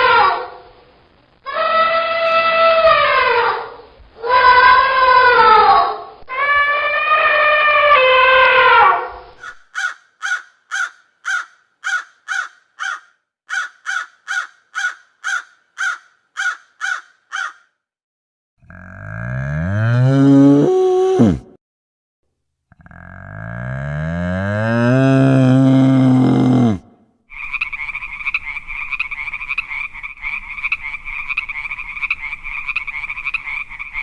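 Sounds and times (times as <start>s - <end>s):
long falling animal calls: 1.4s - 13.0s, 18.7s - 21.5s, 22.8s - 30.6s.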